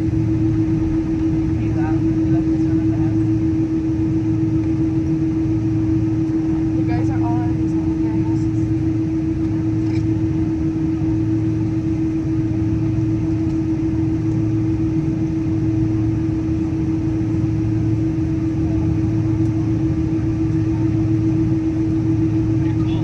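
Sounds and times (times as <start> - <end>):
airplane cabin hum: 0.0 - 23.0.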